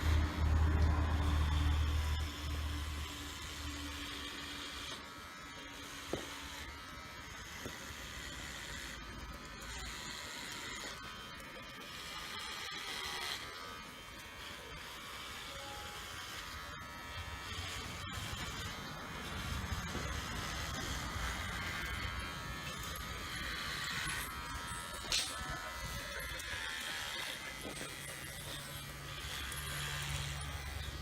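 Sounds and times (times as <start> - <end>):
hair clipper running: 0.0 - 31.0.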